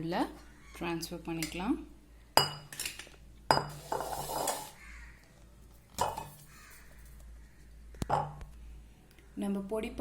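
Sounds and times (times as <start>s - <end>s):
metal utensils scraping: 3.6s - 4.8s.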